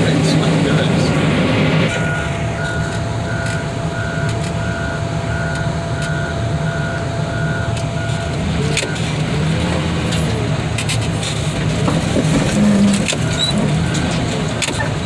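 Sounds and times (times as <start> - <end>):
backup alarm beeping: 0.0 - 9.4, 12.4 - 15.0
diesel engine running: 0.0 - 15.0.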